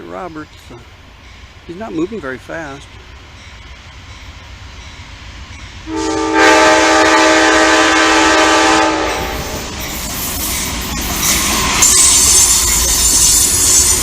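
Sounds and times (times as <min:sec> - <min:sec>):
low rumble of train: 0:00.0 - 0:14.0
train air horn blast: 0:05.9 - 0:09.6.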